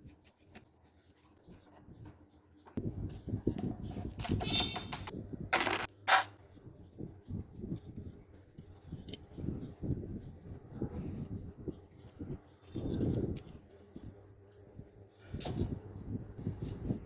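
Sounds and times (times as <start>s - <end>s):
small parts and tools clattering: 4.1s - 6.4s.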